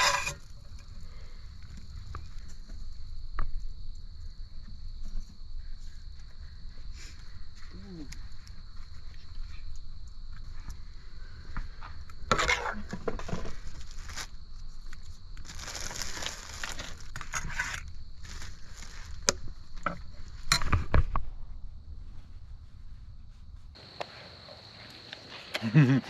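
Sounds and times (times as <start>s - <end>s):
crinkling and rustling handling: 12.9s - 21.1s.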